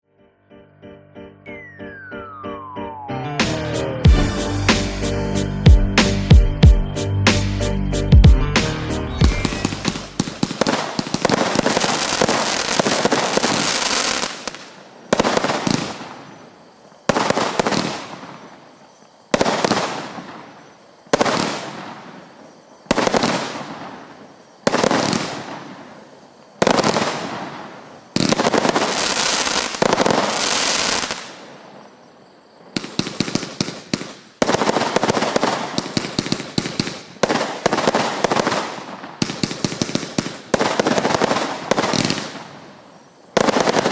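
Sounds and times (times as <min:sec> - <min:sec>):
fireworks crackling: 0:03.4 - 0:06.4, 0:08.6 - 0:43.9
firework shots: 0:09.2 - 0:18.6, 0:19.3 - 0:31.9, 0:32.7 - 0:43.9.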